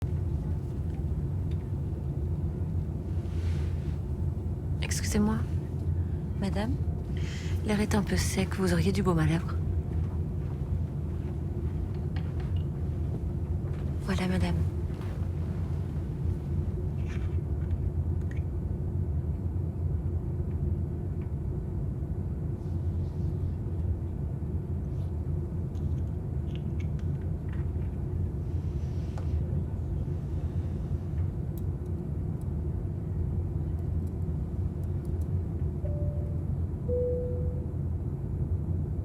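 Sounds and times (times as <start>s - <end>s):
airliner cabin rumble: 0.0s - 39.0s
short tone: 35.8s - 37.8s.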